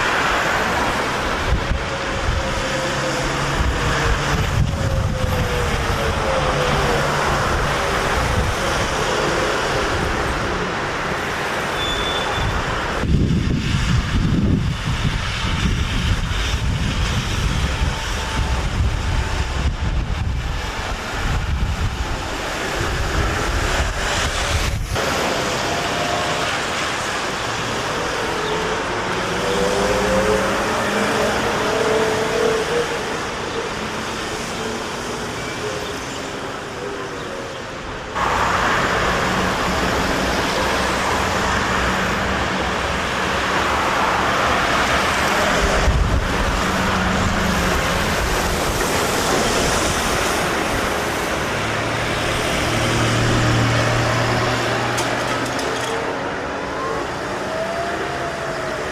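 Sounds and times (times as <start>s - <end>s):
street traffic: 0.0s - 58.9s
vehicle whine pulling away: 13.1s - 35.2s, 38.2s - 58.9s.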